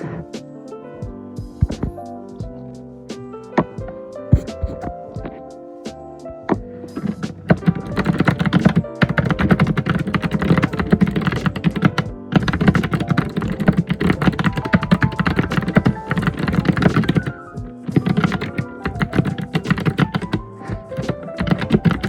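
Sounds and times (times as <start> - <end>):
background music: 0.0 - 22.0
typing on computer keyboard: 7.0 - 22.0.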